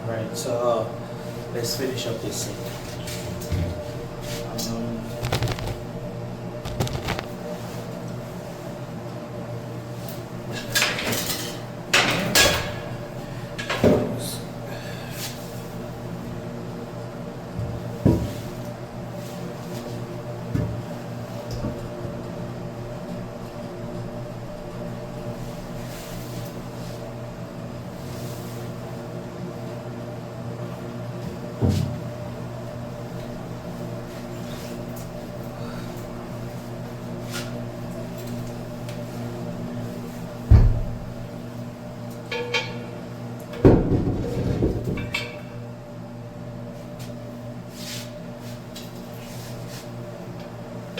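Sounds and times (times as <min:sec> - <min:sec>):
steady mechanical hum: 0:00.0 - 0:50.9
knocks and clatters of tools: 0:05.2 - 0:05.8, 0:06.6 - 0:07.4.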